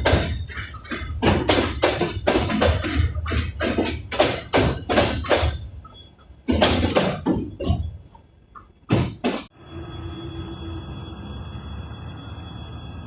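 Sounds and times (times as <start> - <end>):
train wheels clacking over rail joints: 0.0 - 9.5
low train rumble: 0.0 - 13.0.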